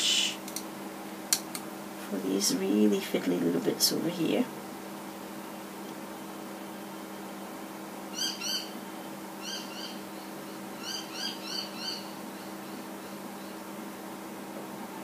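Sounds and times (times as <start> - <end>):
bird chirping: 8.2 - 8.8, 9.4 - 13.6.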